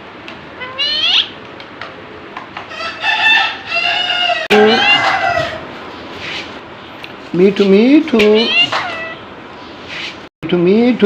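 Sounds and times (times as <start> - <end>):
parrot squawking: 0.5 - 1.4, 2.7 - 5.7, 8.3 - 9.3.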